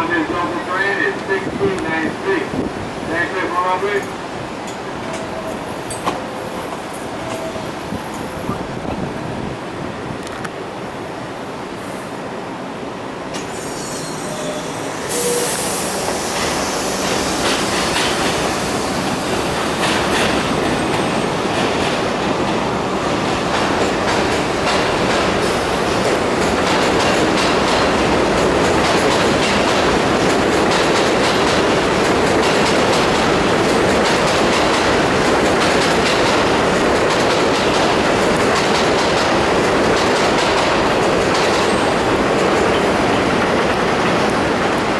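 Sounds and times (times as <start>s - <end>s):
subway train pulling out: 0.0s - 44.9s.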